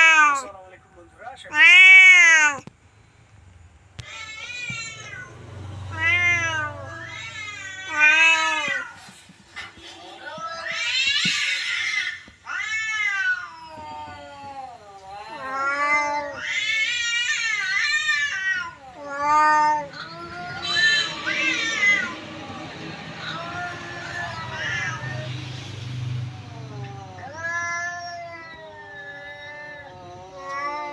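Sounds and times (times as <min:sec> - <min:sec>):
cat meowing in long yowls: 0:00.0 - 0:00.5, 0:01.5 - 0:02.6, 0:04.0 - 0:08.9, 0:26.5 - 0:30.9.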